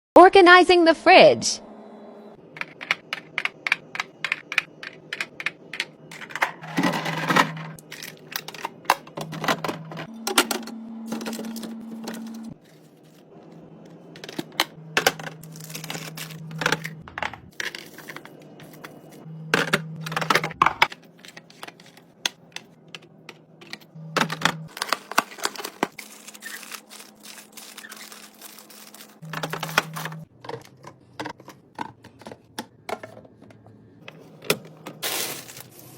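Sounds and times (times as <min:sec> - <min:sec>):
containers and jars clattering: 0:03.9 - 0:12.4
low hum: 0:06.0 - 0:17.6, 0:18.3 - 0:20.9.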